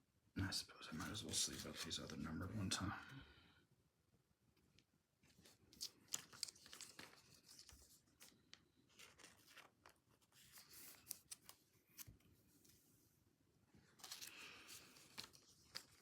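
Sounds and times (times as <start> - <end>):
plastic sleeves crinkling: 5.2 - 12.2, 13.8 - 16.0.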